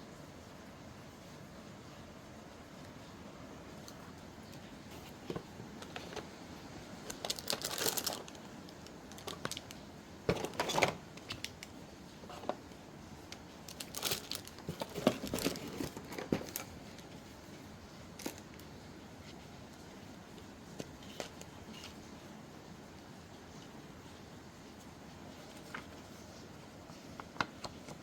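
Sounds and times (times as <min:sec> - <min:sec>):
steady rain hissing: 0:00.0 - 0:28.0
paper rustling and crinkling: 0:03.9 - 0:22.2, 0:24.8 - 0:28.0.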